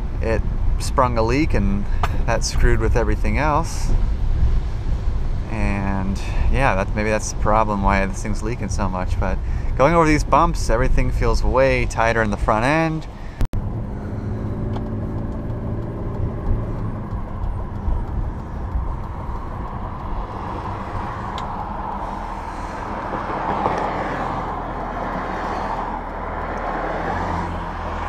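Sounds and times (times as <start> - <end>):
road and tyre noise: 0.0 - 28.0
car engine running: 6.8 - 28.0.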